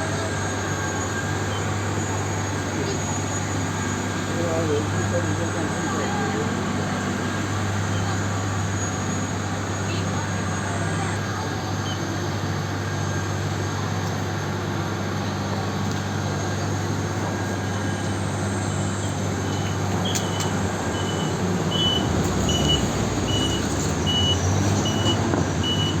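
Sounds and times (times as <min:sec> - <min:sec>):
bus engine humming: 0:00.0 - 0:26.0.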